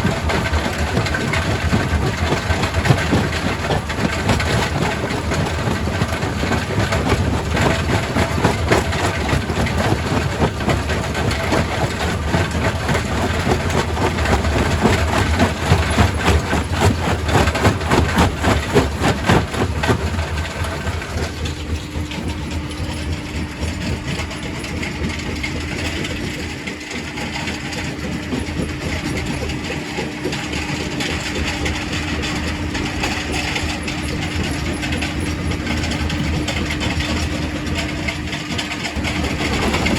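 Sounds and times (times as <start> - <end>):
steady machine hum: 0.0 - 27.0
rock crusher running: 0.0 - 39.9.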